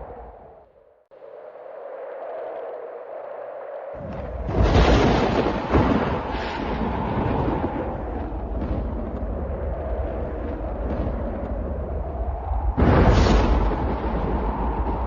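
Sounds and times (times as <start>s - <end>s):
sharp thunder crack: 4.0s - 9.3s, 12.8s - 15.0s
low thunder rumble: 4.0s - 15.0s.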